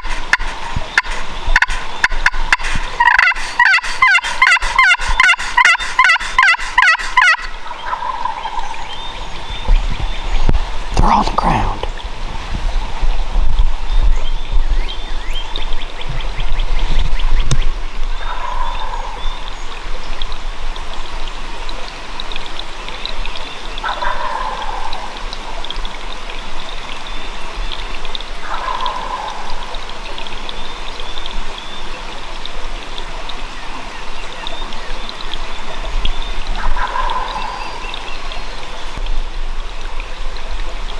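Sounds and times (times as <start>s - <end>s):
turkey gobbling: 0.0s - 8.6s.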